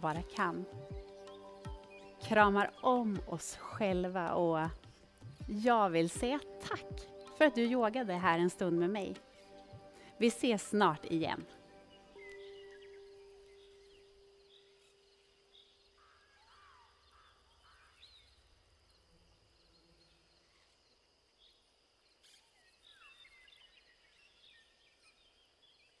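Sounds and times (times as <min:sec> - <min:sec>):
faint bird chirps: 0:11.4 - 0:26.0.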